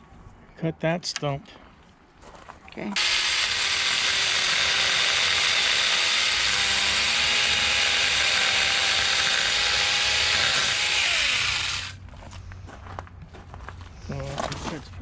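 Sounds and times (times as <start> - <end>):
mini chainsaw cutting wood: 3.0 - 12.0.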